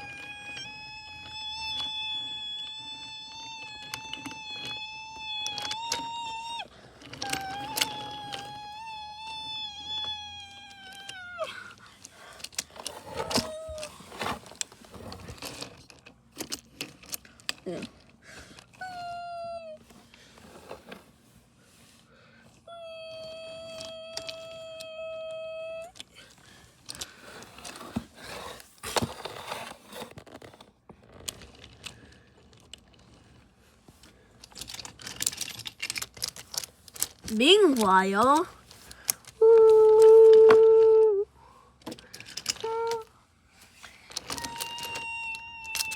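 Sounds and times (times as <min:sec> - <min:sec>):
toy train electric motor whining: 0:00.0 - 0:15.8, 0:22.8 - 0:28.6, 0:34.6 - 0:40.8, 0:42.0 - 0:45.9
small objects being handled: 0:00.0 - 0:45.9
clicks and rattles: 0:34.3 - 0:40.5, 0:43.8 - 0:45.9.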